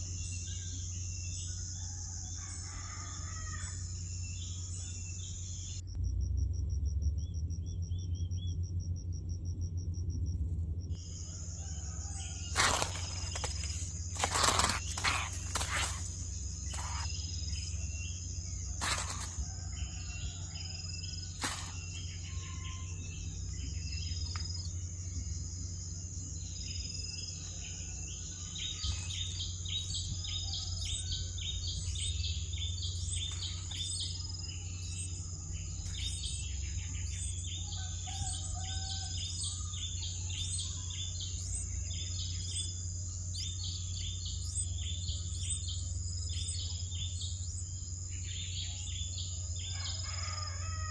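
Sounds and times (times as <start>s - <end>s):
low hum: 3.6s - 49.7s
high insect drone: 10.9s - 50.9s.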